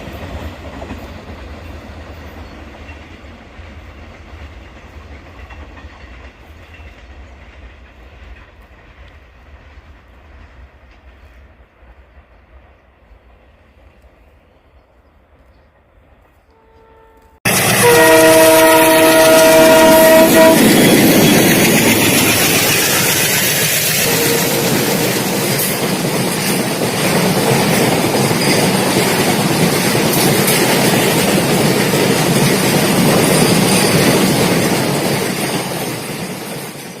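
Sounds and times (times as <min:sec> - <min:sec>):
train wheels clattering on rails: 0:00.0 - 0:14.2, 0:17.5 - 0:37.0
train air horn chord: 0:16.5 - 0:20.8, 0:24.0 - 0:25.2.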